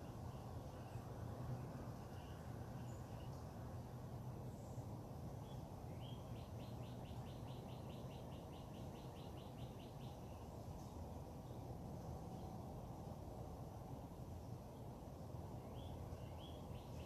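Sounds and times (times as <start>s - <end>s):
songbird singing repeated notes: 0.0s - 3.5s, 4.5s - 11.7s, 14.8s - 17.0s
faint bird chirps: 0.0s - 3.6s, 4.5s - 11.6s, 15.6s - 17.0s.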